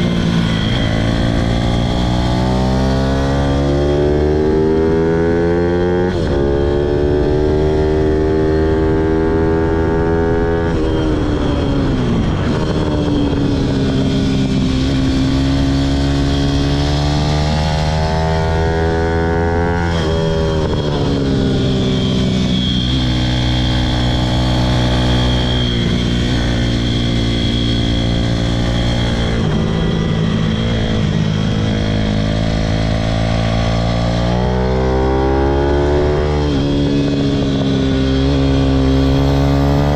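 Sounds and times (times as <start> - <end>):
small motorbike engine revving: 13.6 - 39.9.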